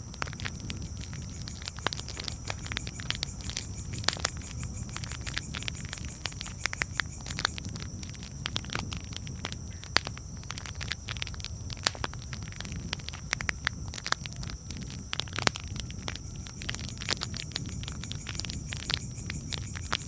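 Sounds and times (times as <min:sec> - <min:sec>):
campfire crackling: 0:00.0 - 0:20.0.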